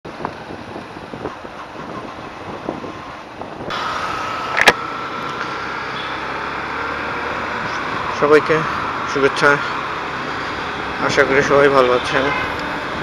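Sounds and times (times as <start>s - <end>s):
road vehicle noise: 0.0s - 13.0s
wind buffeting microphone: 0.1s - 3.8s.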